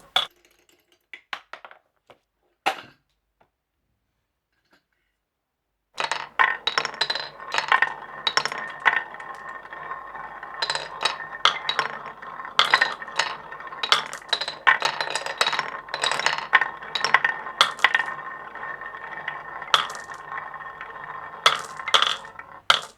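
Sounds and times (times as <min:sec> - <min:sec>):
marbles clinking and clacking: 0:00.0 - 0:00.3, 0:06.0 - 0:22.9
marbles rolling hum: 0:00.0 - 0:00.3, 0:06.0 - 0:22.9.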